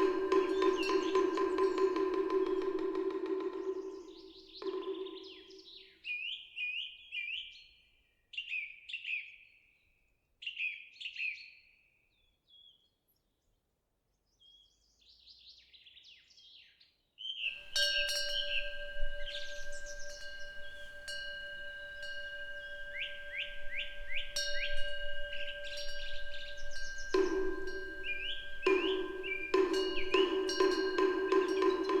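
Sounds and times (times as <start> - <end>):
metal wind bell ringing: 0.0 - 5.5, 17.5 - 32.0
songbird chirping: 0.0 - 7.6, 17.4 - 32.0.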